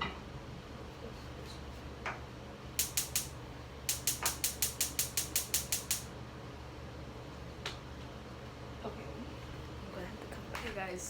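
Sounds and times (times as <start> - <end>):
gas stove igniter clicking: 2.8 - 6.1.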